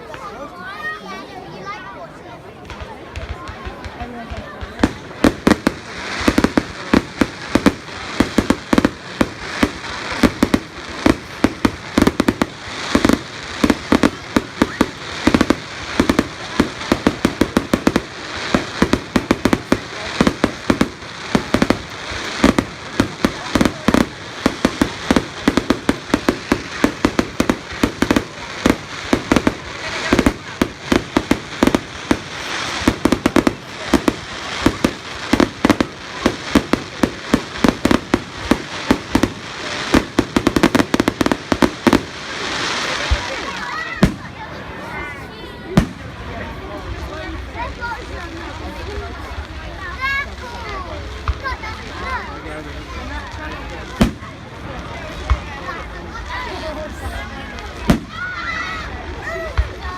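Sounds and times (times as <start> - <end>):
fireworks bangs: 2.4 - 59.9.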